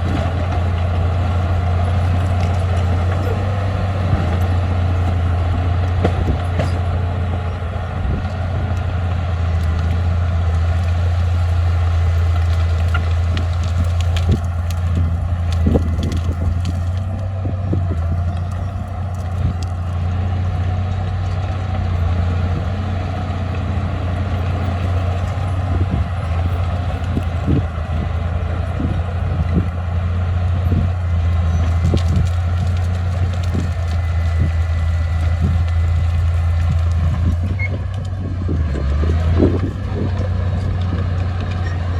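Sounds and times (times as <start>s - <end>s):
short clanks and crunches: 0.0s - 5.2s, 9.5s - 20.0s, 31.3s - 38.2s
diesel engine running: 0.0s - 41.9s.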